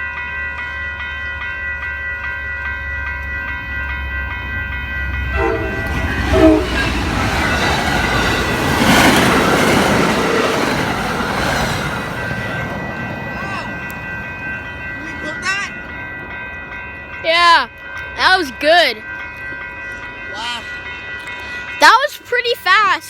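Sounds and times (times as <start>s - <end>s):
railroad crossing bell dinging: 0.0s - 23.0s
train passing on rails: 0.0s - 23.0s
train horn blasts: 5.2s - 8.6s.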